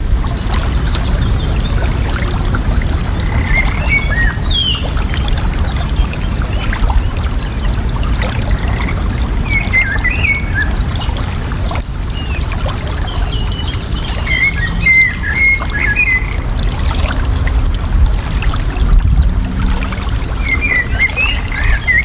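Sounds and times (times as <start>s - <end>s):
trickling water: 0.0s - 22.0s
bird chirping: 0.7s - 5.6s, 13.3s - 16.4s.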